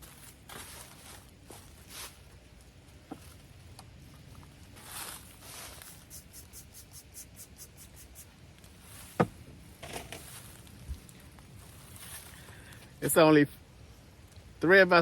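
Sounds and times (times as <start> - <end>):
light scratching strokes: 0.1 - 2.3, 4.7 - 12.4
sharp knocks: 9.2 - 10.2.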